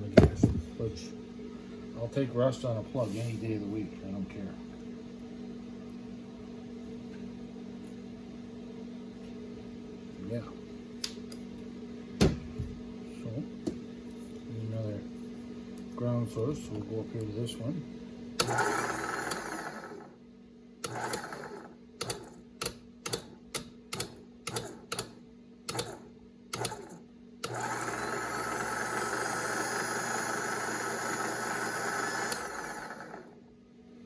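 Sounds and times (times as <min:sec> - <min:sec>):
winch electric motor running: 0:18.4 - 0:20.2, 0:20.8 - 0:22.4, 0:26.6 - 0:33.4.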